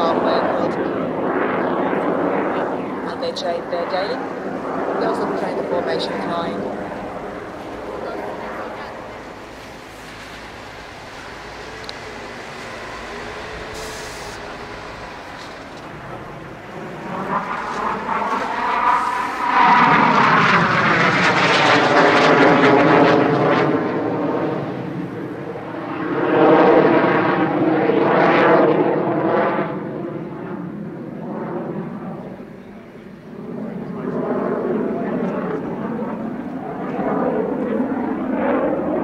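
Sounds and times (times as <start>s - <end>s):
jet flying past: 0.0s - 39.0s.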